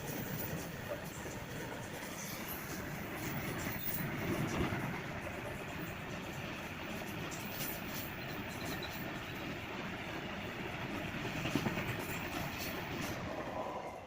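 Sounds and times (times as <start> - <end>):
wheels clicking over rail joints: 0.0 - 9.6
train wheels rumbling on rails: 0.0 - 14.0.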